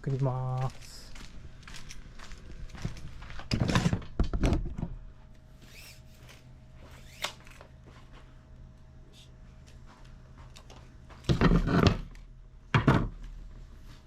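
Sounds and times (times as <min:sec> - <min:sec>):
faint steady hum: 0:00.0 - 0:14.0
knocking and clattering of materials: 0:11.2 - 0:12.1, 0:12.7 - 0:13.2.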